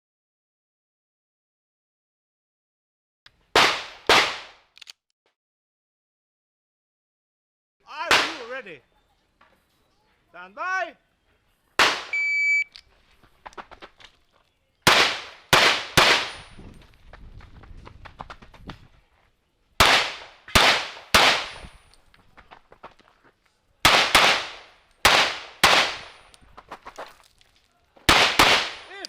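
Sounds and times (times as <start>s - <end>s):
pistol shots: 3.6s - 4.6s, 11.8s - 12.2s, 14.8s - 16.5s, 19.8s - 21.6s, 23.8s - 26.2s, 28.1s - 29.0s
knocks and shuffling: 12.7s - 14.7s, 16.3s - 19.4s, 21.6s - 23.7s, 26.0s - 28.1s.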